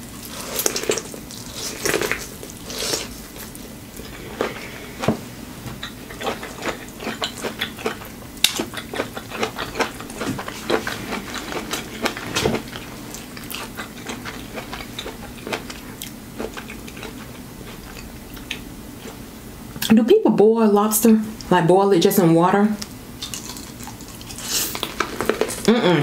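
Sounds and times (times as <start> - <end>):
chewing corn on the cob: 5.8 - 19.2, 23.2 - 25.8.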